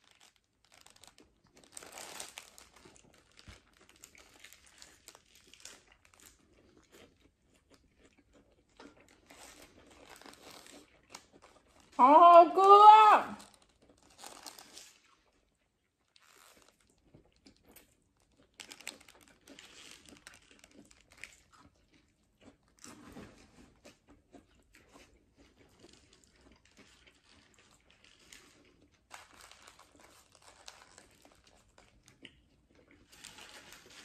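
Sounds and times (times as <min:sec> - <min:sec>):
paper wrapper crinkling: 0:00.0 - 0:06.4, 0:09.2 - 0:12.0, 0:13.4 - 0:15.1, 0:18.5 - 0:21.4, 0:27.2 - 0:32.2, 0:33.1 - 0:34.0
chewing: 0:02.5 - 0:12.0, 0:13.6 - 0:34.0.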